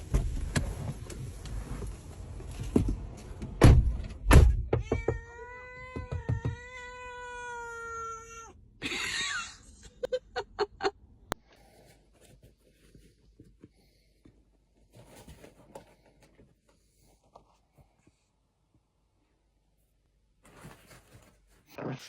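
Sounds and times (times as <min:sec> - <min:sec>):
cat meowing: 0:04.8 - 0:08.6.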